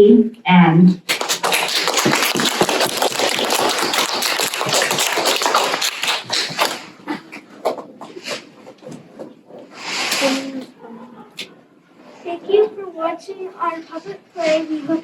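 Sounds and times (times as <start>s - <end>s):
audience applauding: 1.0s - 7.0s.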